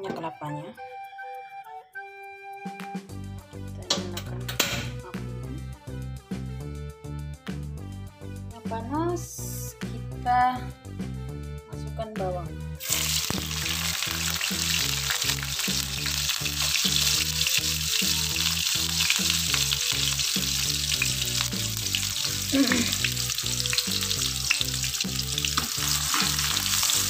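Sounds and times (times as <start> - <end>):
shallots sizzling in oil: 12.8 - 27.0.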